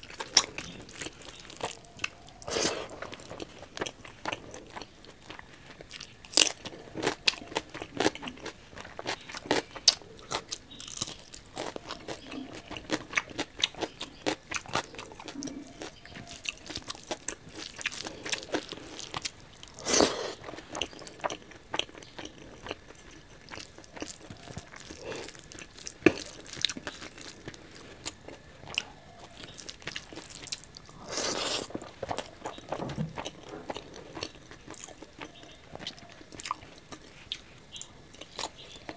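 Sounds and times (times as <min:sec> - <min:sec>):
crunching: 0:00.0 - 0:38.9
wet chewing: 0:00.0 - 0:38.9.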